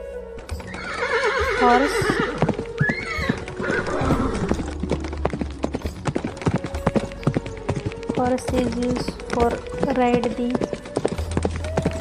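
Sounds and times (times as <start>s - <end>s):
horse hooves clip-clopping: 0.4s - 12.0s
horse whinny: 0.6s - 4.7s.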